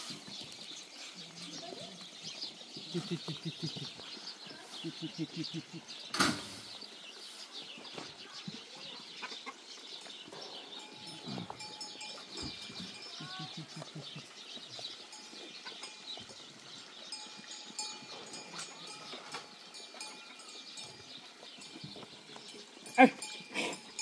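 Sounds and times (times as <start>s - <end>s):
high chirping: 0.0s - 7.0s, 10.0s - 16.4s
low clucking: 2.8s - 4.2s, 4.8s - 5.9s, 11.4s - 14.7s.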